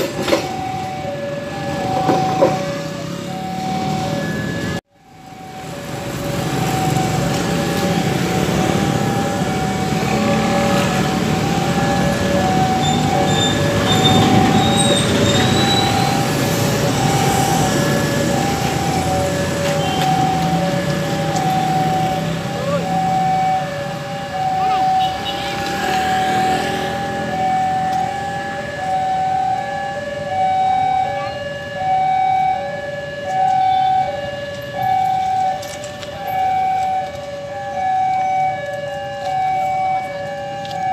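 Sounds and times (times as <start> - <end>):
level crossing alarm two tones: 0.0 - 25.4, 26.0 - 40.9
train rumbling: 6.0 - 22.3.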